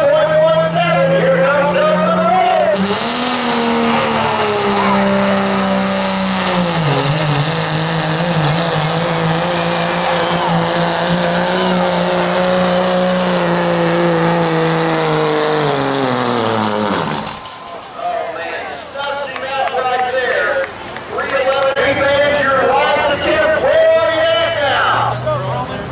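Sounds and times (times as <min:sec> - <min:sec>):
diesel engine at full throttle: 0:00.0 - 0:25.9
turbo whistle: 0:01.4 - 0:03.3.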